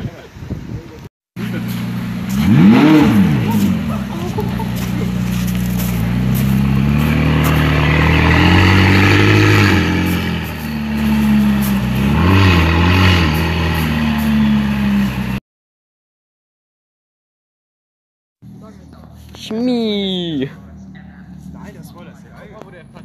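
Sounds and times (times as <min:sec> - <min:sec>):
car engine at low revs: 0:01.4 - 0:15.4.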